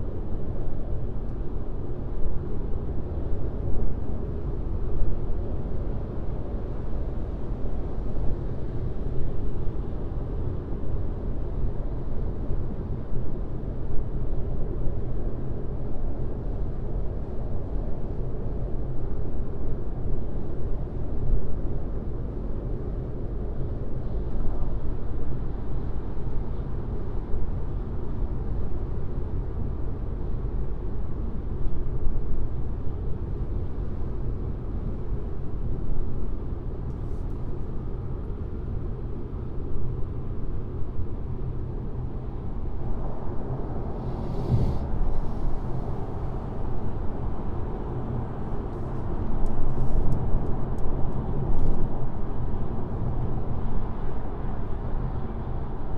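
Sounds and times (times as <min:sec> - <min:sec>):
car driving on highway: 0:41.4 - 0:51.0
loud rush of air: 0:42.4 - 0:48.7.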